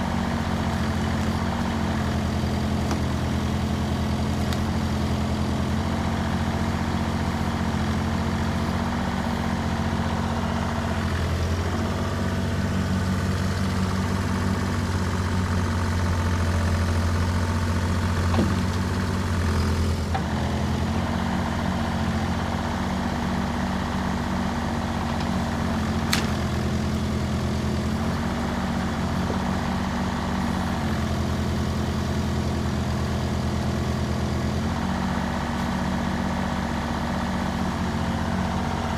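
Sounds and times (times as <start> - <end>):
mini excavator diesel engine: 0.0 - 38.9.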